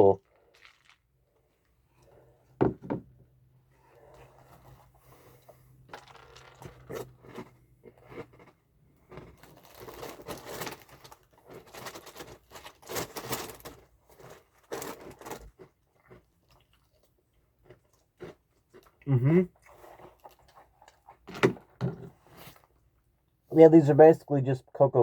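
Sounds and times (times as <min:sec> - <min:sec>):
person chewing crunchy cereal: 0:00.2 - 0:02.6, 0:03.8 - 0:21.3.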